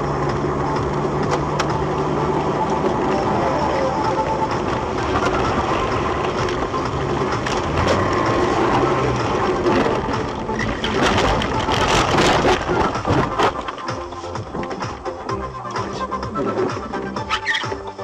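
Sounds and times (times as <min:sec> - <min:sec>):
car engine and road rumble: 0:00.0 - 0:18.0
knocks and rattles: 0:04.5 - 0:18.0.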